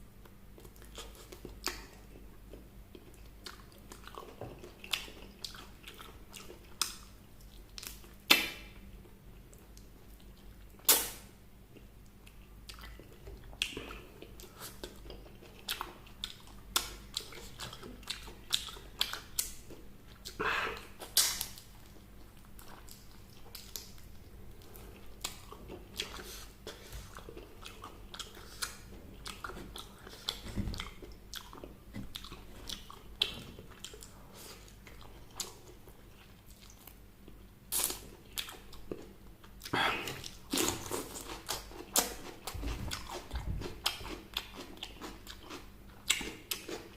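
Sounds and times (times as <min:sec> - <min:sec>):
crunchy chewing: 0:11.7 - 0:46.9.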